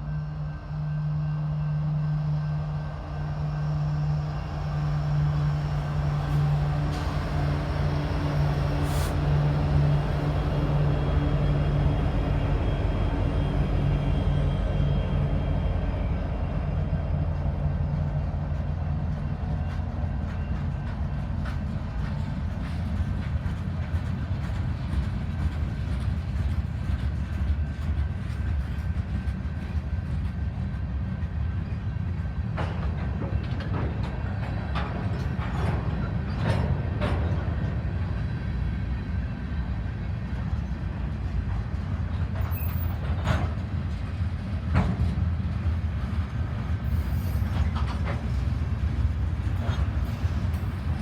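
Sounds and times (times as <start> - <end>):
diesel locomotive drone: 0.0 - 51.0
freight train cars rumbling: 0.0 - 51.0.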